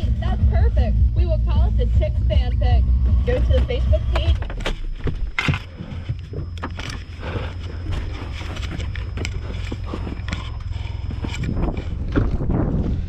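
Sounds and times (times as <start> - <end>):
snowplow engine humming: 0.0 - 13.0.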